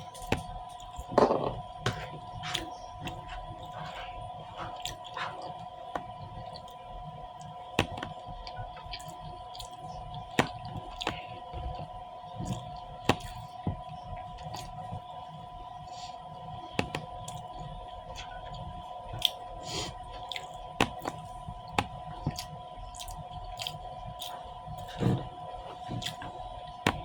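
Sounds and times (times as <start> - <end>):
soft mouth eating noises: 0.0 - 6.8, 17.3 - 21.4, 22.2 - 26.5.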